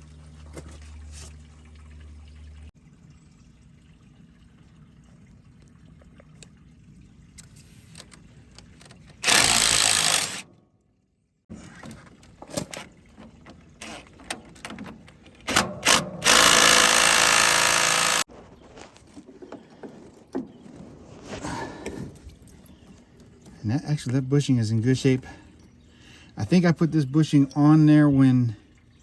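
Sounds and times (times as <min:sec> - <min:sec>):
power tool running: 0:09.2 - 0:10.4, 0:15.5 - 0:18.3.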